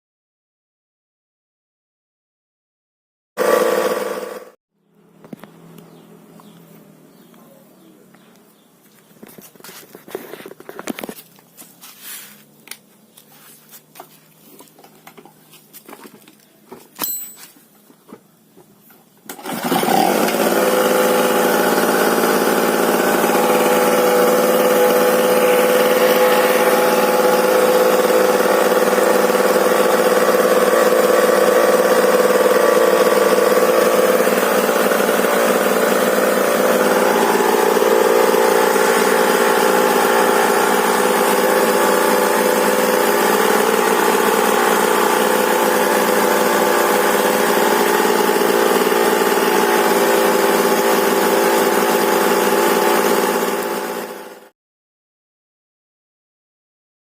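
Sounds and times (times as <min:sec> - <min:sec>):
two-stroke generator engine: 0:03.4 - 0:04.6, 0:19.2 - 0:54.5.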